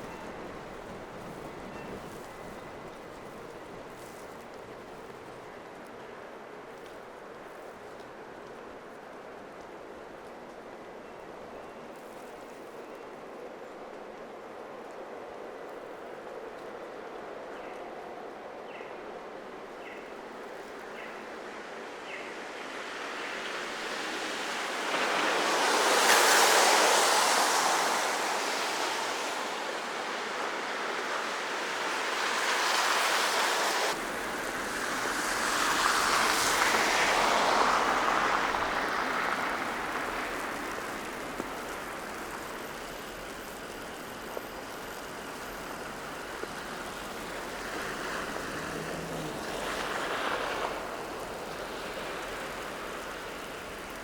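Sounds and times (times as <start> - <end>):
traffic background: 0.0 - 54.0
car tyres hissing on slush: 21.4 - 54.0.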